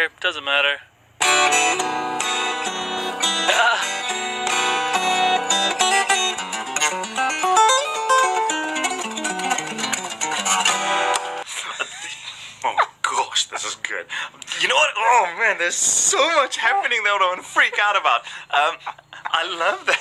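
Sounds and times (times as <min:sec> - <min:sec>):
acoustic fingerstyle guitar: 0:01.2 - 0:11.5.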